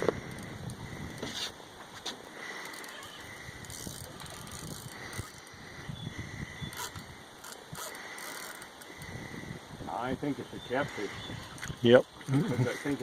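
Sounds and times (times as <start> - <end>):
fishing rod and reel handling: 0.0 - 5.6, 6.7 - 9.1, 11.4 - 13.0
outdoor background noise: 0.0 - 13.0
reel clicks and rattles: 2.6 - 5.6, 6.7 - 9.0.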